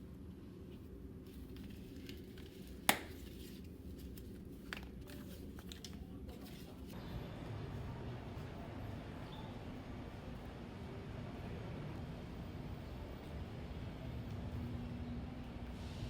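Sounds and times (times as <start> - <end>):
steady low hum: 6.9 - 16.0.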